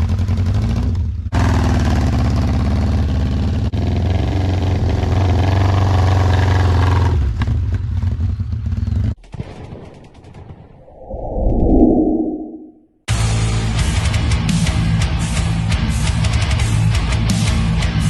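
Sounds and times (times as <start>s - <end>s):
motorcycle engine revving: 0.0s - 9.1s.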